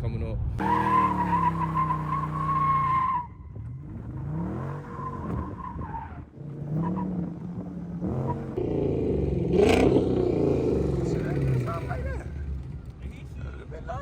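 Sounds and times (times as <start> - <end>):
car tires squealing: 0.6 - 8.6
car engine revving: 0.6 - 13.8.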